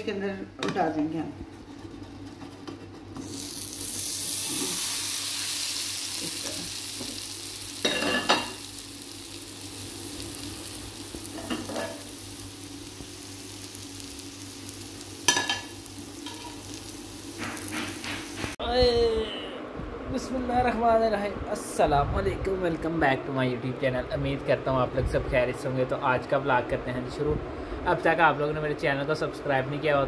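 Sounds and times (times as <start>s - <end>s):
pancake sizzling in oil: 3.2s - 18.6s.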